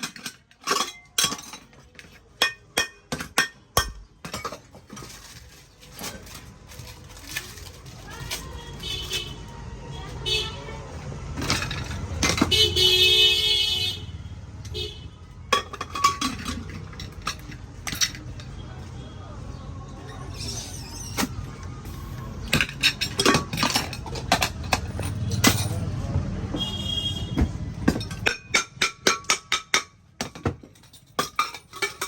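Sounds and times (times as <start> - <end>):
tools knocking on metal: 27.3 - 32.0.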